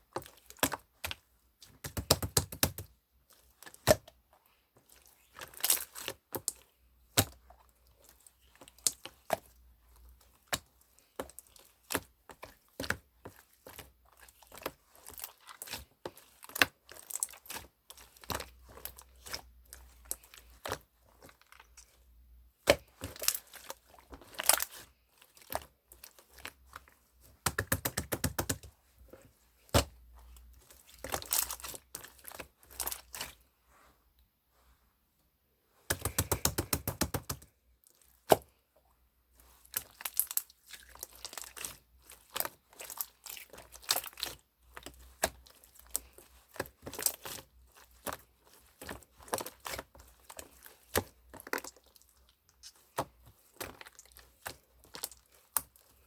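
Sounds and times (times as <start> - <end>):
slime clicking and popping: 1.8 - 2.9, 27.4 - 28.7, 35.9 - 37.5.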